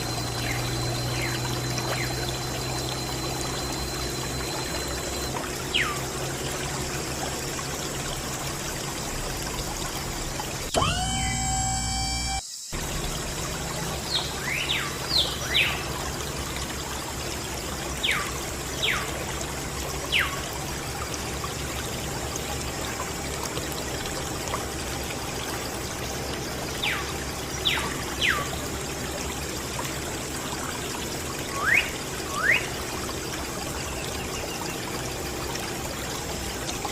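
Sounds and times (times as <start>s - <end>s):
short downward chirps: 0.0s - 6.1s, 10.7s - 13.2s
water trickling from pump: 0.0s - 36.9s.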